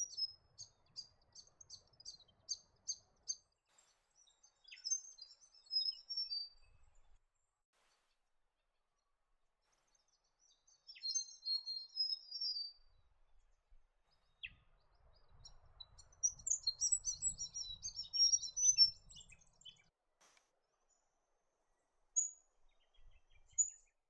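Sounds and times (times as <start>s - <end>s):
bird twittering: 16.0s - 19.8s.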